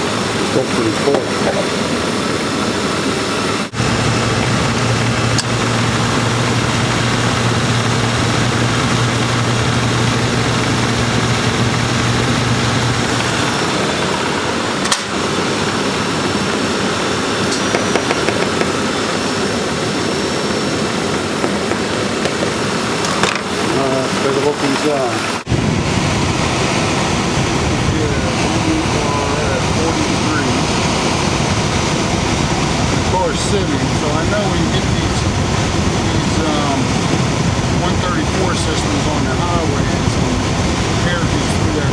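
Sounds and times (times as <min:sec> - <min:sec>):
low hum: 0:00.0 - 0:24.6
air conditioning rush: 0:00.0 - 0:41.9
car engine idling: 0:03.6 - 0:41.9.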